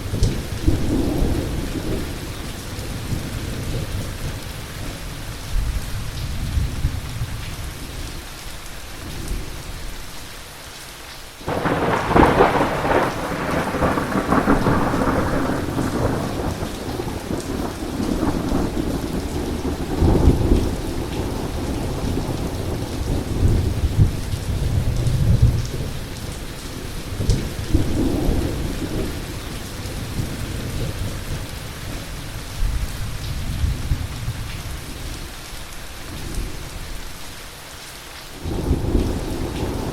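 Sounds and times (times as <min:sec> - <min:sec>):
heavy rain: 0:00.0 - 0:39.9
loud thunderclap: 0:11.5 - 0:26.0
rolling thunder: 0:11.5 - 0:34.8, 0:38.4 - 0:39.9.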